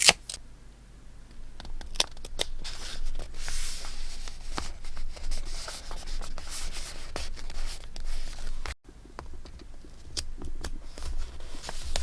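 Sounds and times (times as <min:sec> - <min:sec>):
paper rustling: 0:01.8 - 0:08.8, 0:09.8 - 0:12.0.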